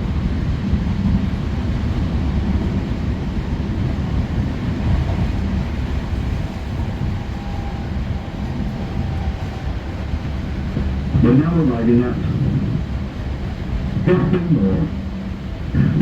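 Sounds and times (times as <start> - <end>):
train wheels rumbling: 0.0 - 16.0
faint whine: 5.3 - 16.0.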